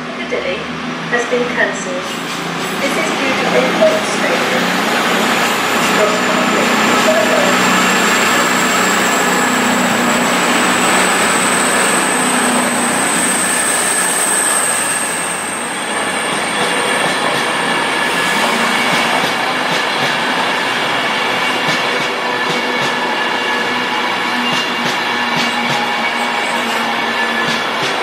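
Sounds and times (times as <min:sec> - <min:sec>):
train running on rails: 0:00.0 - 0:28.0
high-pitched wheel squeal: 0:06.9 - 0:17.0.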